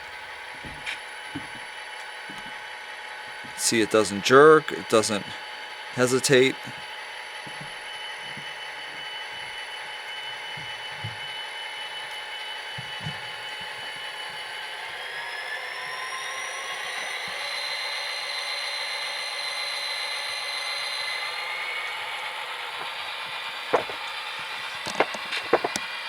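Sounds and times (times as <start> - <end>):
diesel engine sound from small speaker: 3.6 - 6.8
model motor and gears whine: 6.7 - 26.0.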